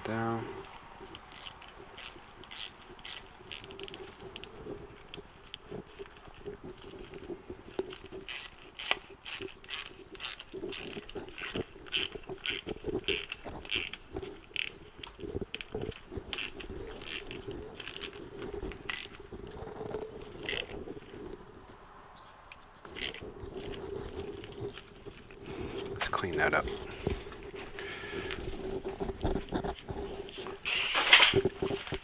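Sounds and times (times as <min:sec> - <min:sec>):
ratchet wrench clicking: 0:01.3 - 0:04.0, 0:08.3 - 0:14.0, 0:16.4 - 0:18.2.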